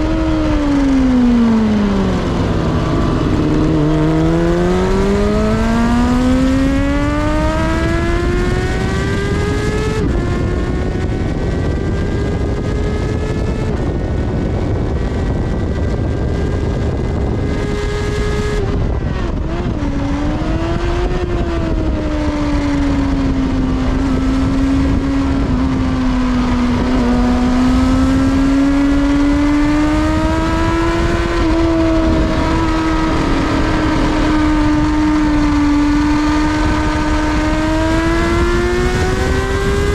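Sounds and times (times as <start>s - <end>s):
motorcycle engine revving: 0.0s - 39.9s
wind rushing over microphone: 0.0s - 39.9s.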